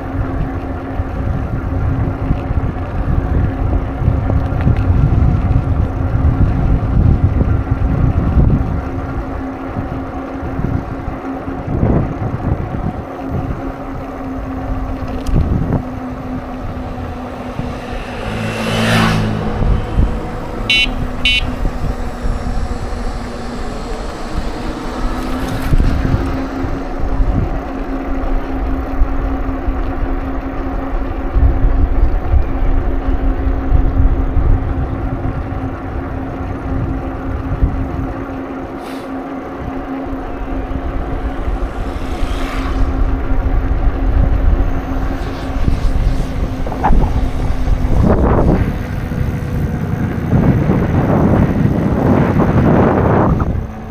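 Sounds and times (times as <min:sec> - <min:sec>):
constant low hum: 0:00.0 - 0:53.9
motor vehicle passing: 0:00.0 - 0:53.9
wind and bicycle tyres rumbling: 0:00.0 - 0:53.9
short high-pitched tones: 0:20.3 - 0:23.3.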